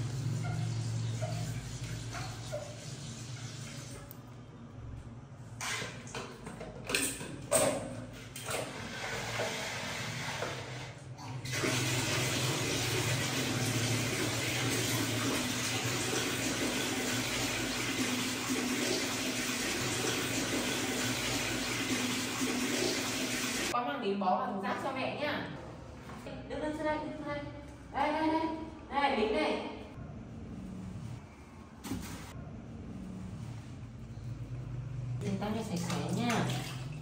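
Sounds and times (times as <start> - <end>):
tap water running into basin: 8.5 - 23.8, 35.6 - 37.0.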